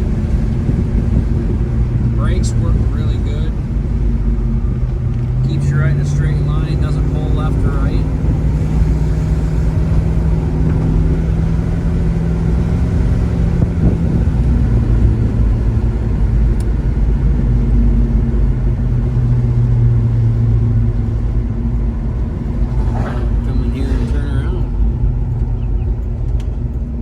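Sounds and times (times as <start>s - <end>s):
car engine drone: 0.0s - 27.0s
road and wind noise: 0.0s - 27.0s.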